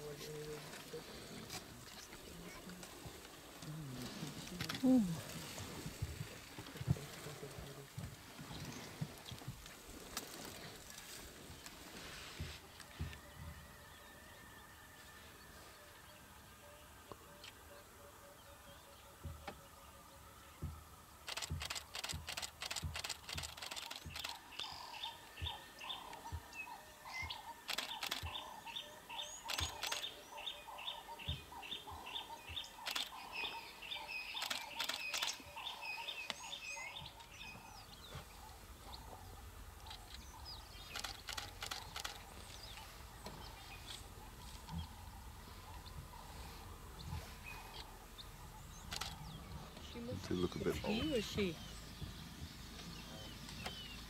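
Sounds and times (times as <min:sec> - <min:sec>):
bursts of sharp clicks: 0:21.3 - 0:24.4, 0:40.9 - 0:42.2.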